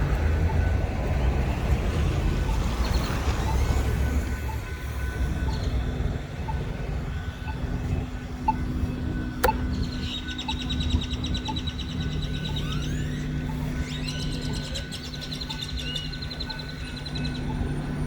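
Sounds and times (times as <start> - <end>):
mechanical rumble with hum: 0.0 - 18.0
sharp click: 9.4 - 9.7.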